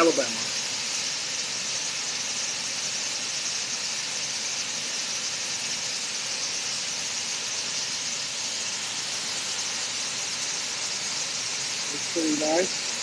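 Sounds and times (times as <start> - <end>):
waterfall rushing: 8.7 - 13.0.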